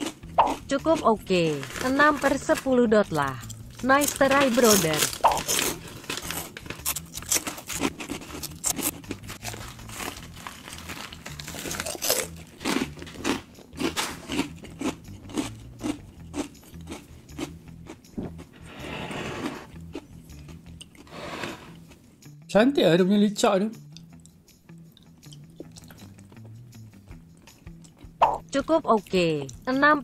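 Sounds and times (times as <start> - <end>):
plastic packet crinkling: 1.4 - 2.7, 4.0 - 7.8, 8.4 - 12.4
crunching crisp snack: 3.4 - 18.0.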